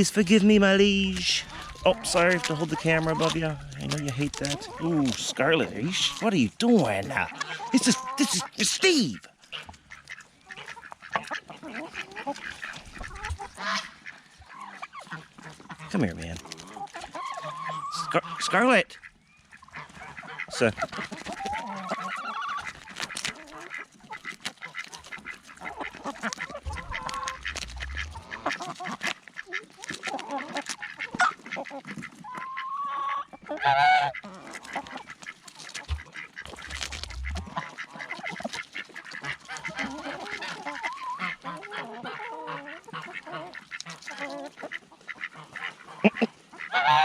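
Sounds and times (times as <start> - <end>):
ducks quacking and honking: 0.0 - 47.0.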